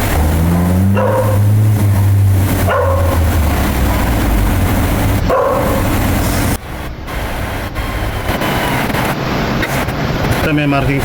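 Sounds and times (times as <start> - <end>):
engine humming: 0.0 - 11.0
dog barking: 0.9 - 1.5, 2.6 - 3.3, 5.2 - 6.0.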